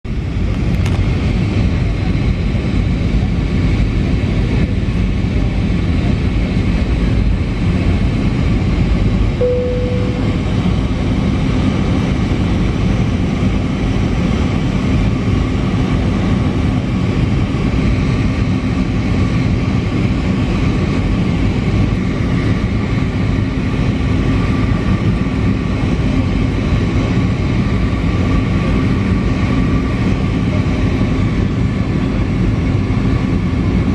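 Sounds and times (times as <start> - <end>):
airliner engine and airflow rumble: 0.0 - 33.9
short tone: 9.4 - 11.0.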